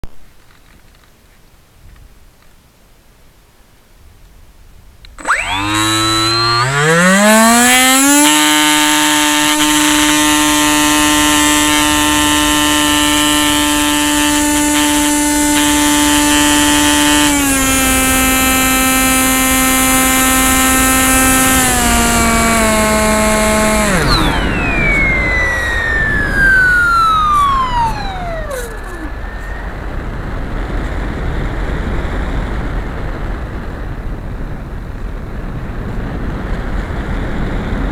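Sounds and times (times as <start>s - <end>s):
wind noise: 0.1s - 37.9s
electric motor and propeller whine: 5.1s - 33.5s.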